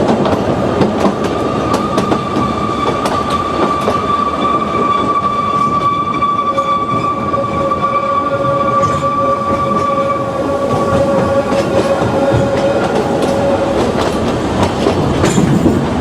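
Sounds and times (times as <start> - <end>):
train wheels rumbling on track: 0.0 - 16.0
low wheel squeal: 1.8 - 13.7
high wheel squeal: 1.8 - 13.8.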